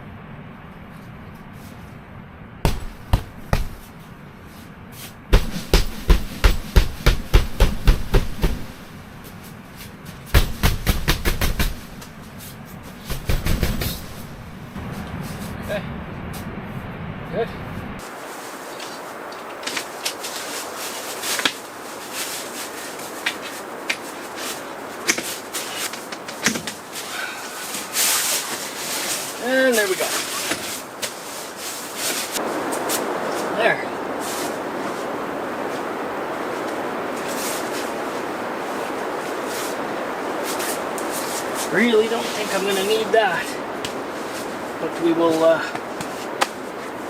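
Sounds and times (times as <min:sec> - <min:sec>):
blizzard wind rumble: 0:00.0 - 0:47.0
sharp hammering knocks: 0:02.6 - 0:03.9, 0:05.3 - 0:09.0, 0:10.3 - 0:12.2, 0:13.0 - 0:14.6
camping gear clicks and knocks: 0:18.8 - 0:29.4, 0:30.0 - 0:32.4.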